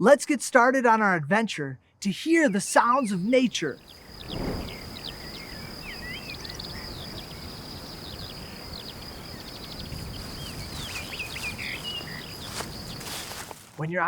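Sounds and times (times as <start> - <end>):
songbirds chirping: 2.0 - 14.0
low background rush: 2.5 - 13.4
high-pitched insect drone: 3.8 - 13.2.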